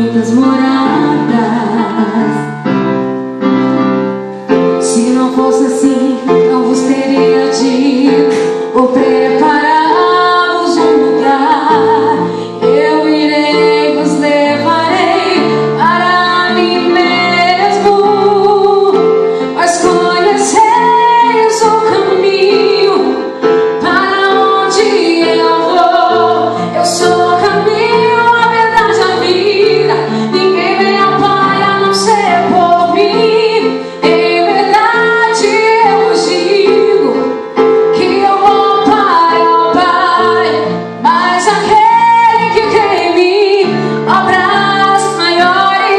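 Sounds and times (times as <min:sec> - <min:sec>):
woman singing: 0:00.0 - 0:02.7, 0:04.8 - 0:45.9
keyboard chords: 0:00.0 - 0:45.9.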